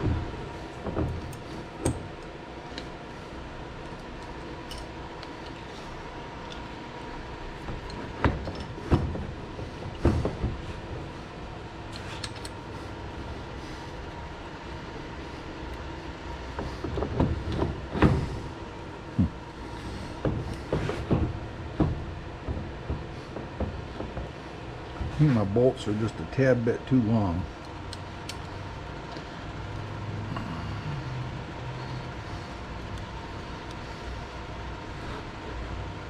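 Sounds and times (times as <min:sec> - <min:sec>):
steady shop hum: 0:00.0 - 0:36.0
metal parts clicking and knocking: 0:11.9 - 0:12.6.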